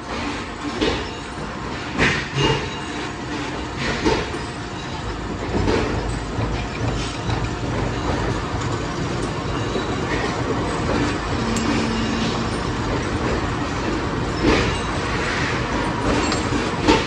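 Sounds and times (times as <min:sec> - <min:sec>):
metalworking machinery clattering: 0:00.0 - 0:17.0
steady machine hum: 0:07.4 - 0:16.9.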